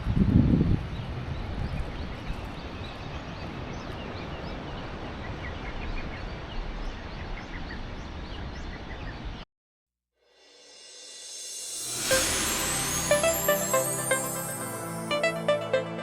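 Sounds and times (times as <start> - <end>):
wind: 0.0 - 9.5
small birds chirping: 0.9 - 9.4.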